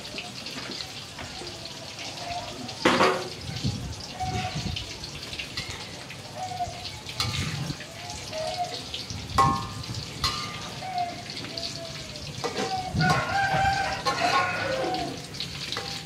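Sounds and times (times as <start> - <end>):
eggplant sizzling in a wok: 0.0 - 16.0
metal spatula scraping pan: 7.2 - 7.7.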